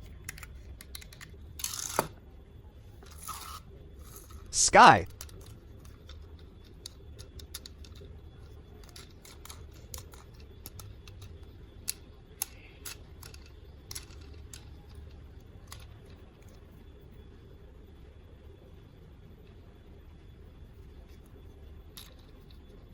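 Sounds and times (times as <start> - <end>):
plastic toys clicking and tapping: 0.0 - 2.1, 5.1 - 16.6, 22.0 - 22.6.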